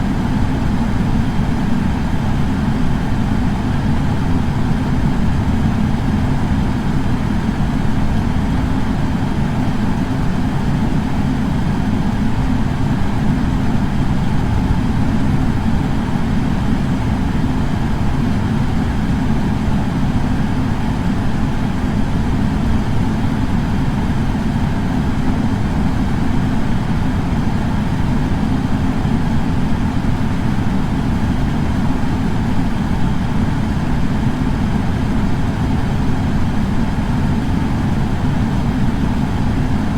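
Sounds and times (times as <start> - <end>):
air purifier fan running: 0.0 - 39.9.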